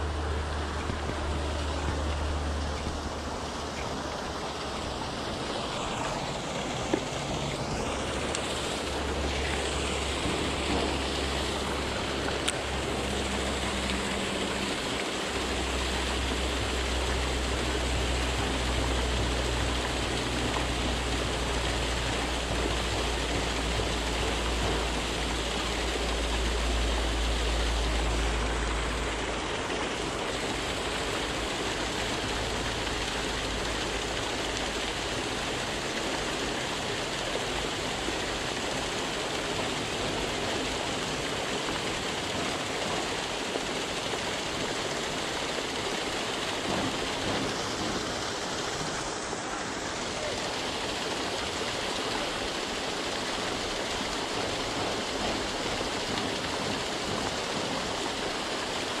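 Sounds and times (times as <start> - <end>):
low hum: 0.0 - 36.5
water rushing and splashing: 0.0 - 59.0.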